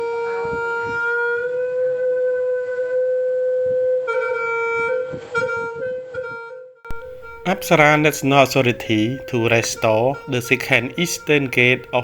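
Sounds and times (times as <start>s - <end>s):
wind instrument long note: 6.9s - 12.0s.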